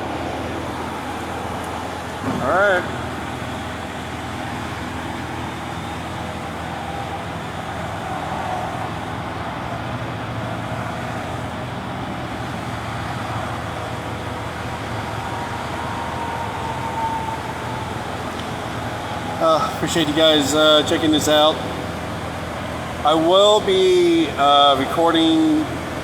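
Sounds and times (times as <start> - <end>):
engine running: 0.0 - 26.0
road traffic noise: 0.0 - 26.0.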